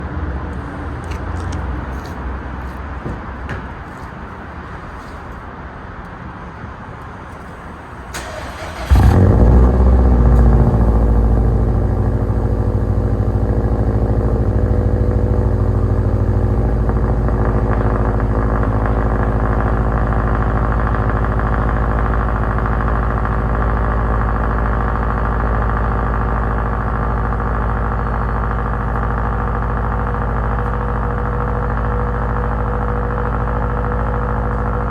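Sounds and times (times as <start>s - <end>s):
car engine starting and idling: 0.4s - 34.9s
low rumble: 7.4s - 25.3s.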